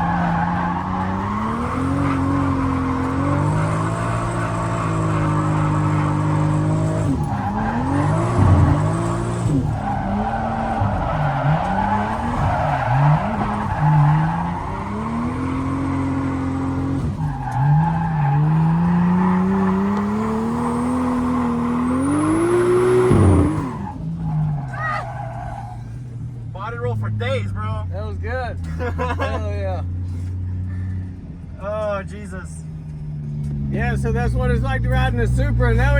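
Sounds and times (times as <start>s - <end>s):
tires squealing: 0.0s - 27.9s, 32.8s - 35.9s
car engine revving: 0.0s - 28.2s, 32.7s - 35.9s.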